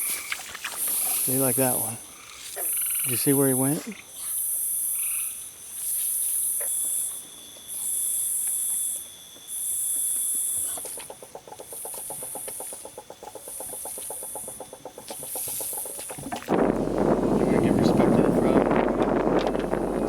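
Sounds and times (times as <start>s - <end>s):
high buzzing insect pulses: 0.0s - 20.0s
steady high insect trilling: 0.0s - 20.0s
frog low pulsing trill: 6.4s - 20.0s.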